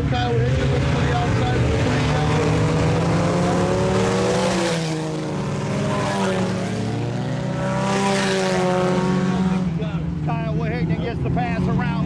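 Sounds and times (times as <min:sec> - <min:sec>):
race car engines: 0:00.0 - 0:12.0.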